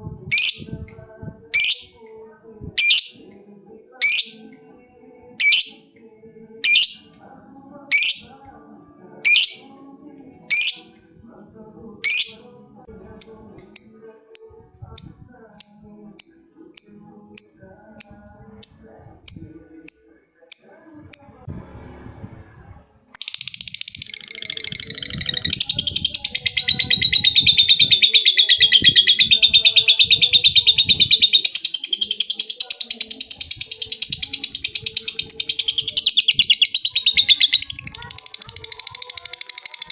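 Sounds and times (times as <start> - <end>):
lovebird calling: 2.8 - 3.2, 9.2 - 9.7
lovebird rapid chattering trill: 6.6 - 7.0, 23.2 - 39.9.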